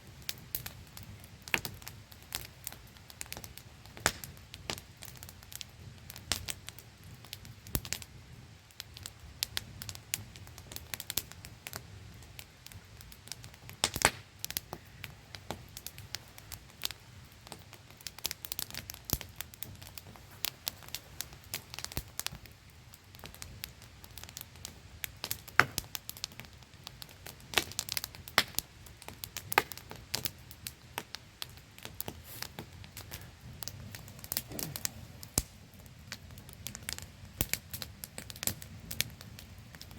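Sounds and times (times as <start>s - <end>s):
campfire crackling and popping: 0.0s - 39.9s
small waterfall hiss: 32.0s - 35.6s.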